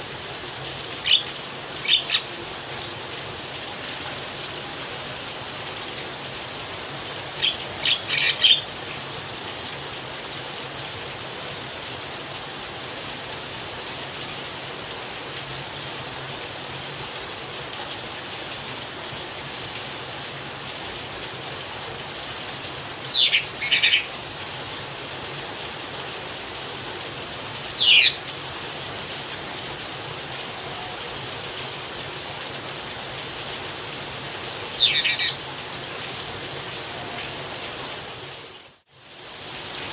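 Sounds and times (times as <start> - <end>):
rain falling: 0.0 - 39.9
bird giving short downward calls: 1.0 - 2.4, 7.4 - 8.7, 23.0 - 24.2, 27.7 - 28.2, 34.7 - 35.4.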